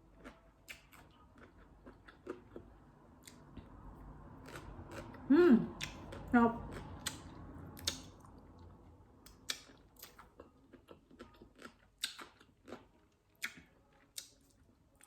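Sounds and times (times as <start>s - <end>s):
person chewing crunchy fruit: 0.0s - 3.7s, 4.3s - 15.0s.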